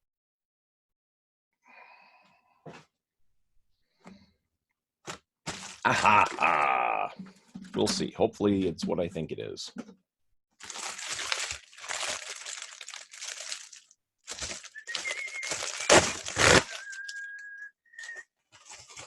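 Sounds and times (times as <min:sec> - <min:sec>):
wrapping crinkling: 0:05.5 - 0:06.8, 0:10.6 - 0:19.0
package being torn open: 0:10.6 - 0:17.3
sharp loud crunches: 0:14.3 - 0:17.0.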